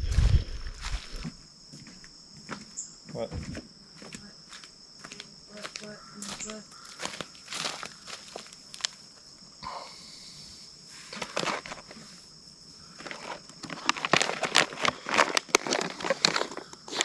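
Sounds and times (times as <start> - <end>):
high insect drone: 0.0 - 17.0
rustling and clicking of packaging: 11.1 - 12.0, 13.0 - 17.0.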